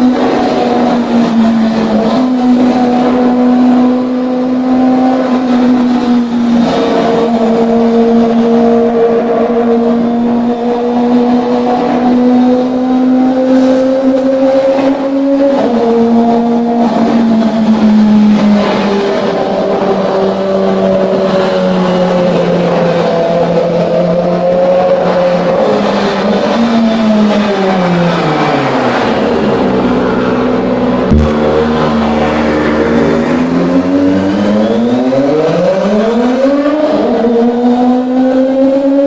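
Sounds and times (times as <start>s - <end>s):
sharp knock: 31.1s - 32.1s
motorcycle engine revving high: 31.1s - 32.6s.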